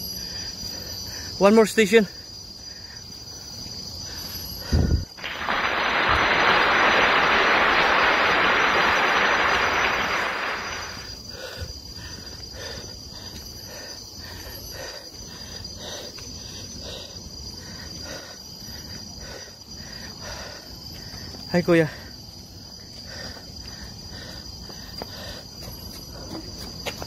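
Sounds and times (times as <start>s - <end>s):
insects droning: 0.0s - 27.0s
footsteps on paved path: 10.8s - 27.0s.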